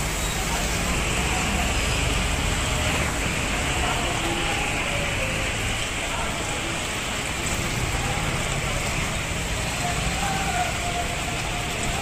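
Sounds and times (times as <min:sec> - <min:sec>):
heavy rain on street: 0:00.0 - 0:12.0
vehicles driving on wet road: 0:00.0 - 0:12.0.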